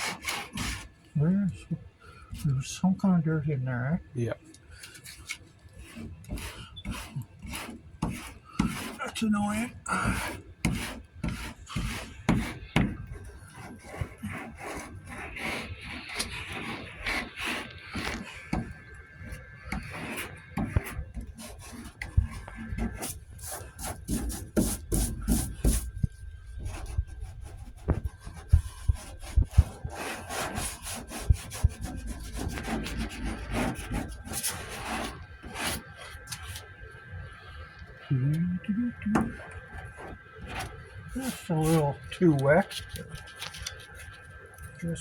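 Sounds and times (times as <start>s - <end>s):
sanding board rasping: 0.0s - 0.9s, 5.8s - 26.0s, 26.6s - 35.9s, 41.2s - 42.0s.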